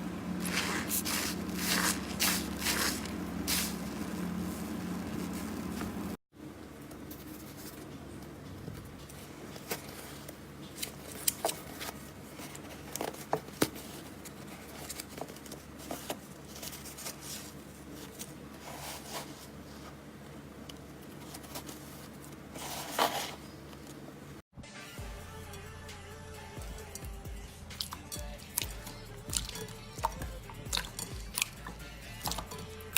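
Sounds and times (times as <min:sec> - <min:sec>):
knife carving soap: 0:00.4 - 0:03.8.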